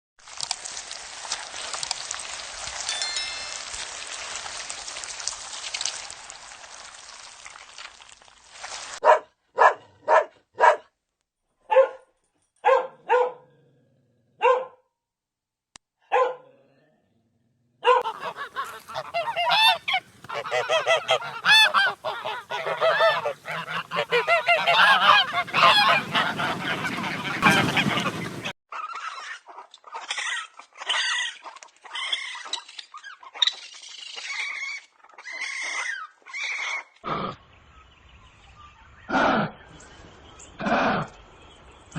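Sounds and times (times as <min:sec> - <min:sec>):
flock clamour of honks: 0:18.0 - 0:28.5
waterfowl honking: 0:18.0 - 0:29.2.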